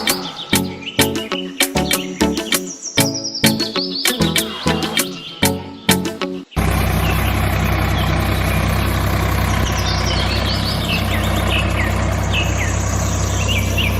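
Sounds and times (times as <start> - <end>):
birds chirping: 0.0 - 13.9
engine idling: 6.6 - 13.9.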